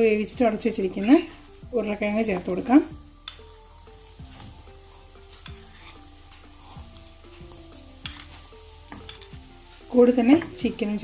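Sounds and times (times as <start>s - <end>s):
faint sizzle: 0.0s - 11.0s
soft background music: 0.0s - 11.0s
spoon stirring and scraping in pan: 2.2s - 11.0s
spoon clicking against pan: 3.2s - 3.5s, 8.9s - 9.4s.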